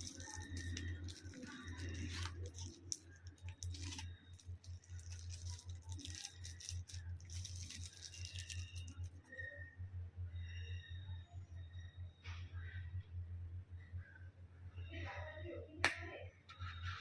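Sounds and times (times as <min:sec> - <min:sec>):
objects clicking and rattling: 0:00.0 - 0:09.2
steady low hum: 0:00.0 - 0:17.0.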